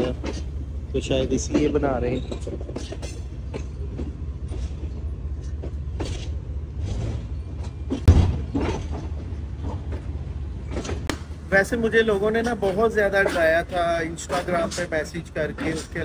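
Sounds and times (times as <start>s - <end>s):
train clanks: 0.0s - 16.0s
train rumbling: 0.0s - 16.0s
loud thump: 7.9s - 9.2s.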